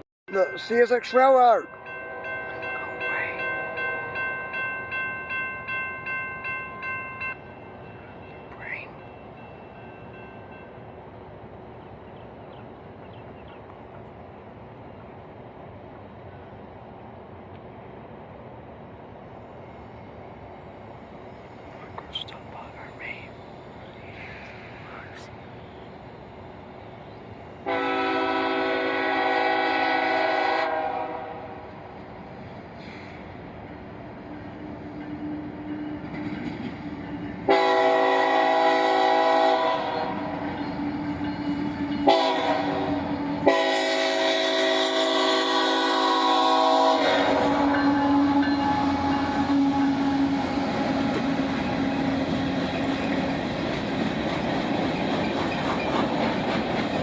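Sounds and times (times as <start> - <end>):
locomotive air horn: 27.6 - 31.6, 37.5 - 40.1, 42.0 - 52.3
train wheels clattering over rails: 35.0 - 43.8, 47.0 - 57.0.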